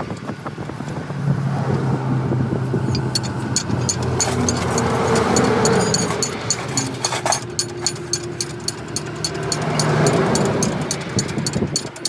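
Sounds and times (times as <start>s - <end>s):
rapid sharp metallic ticks: 2.7s - 12.0s.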